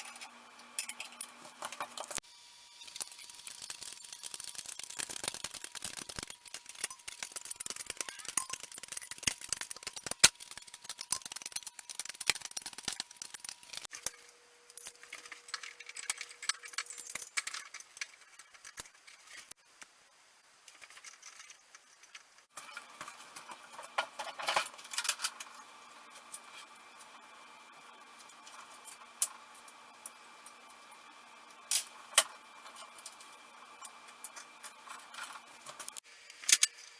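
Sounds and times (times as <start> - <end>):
metal parts and tools clinking: 0.0 - 2.2, 2.8 - 19.6, 20.8 - 25.6.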